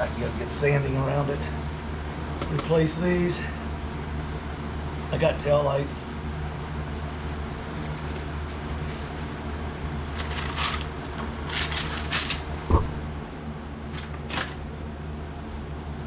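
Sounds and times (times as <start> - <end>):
rustling and scraping handling noise: 0.0 - 0.4, 7.1 - 12.5, 13.8 - 14.6
steady low hum: 0.0 - 16.0.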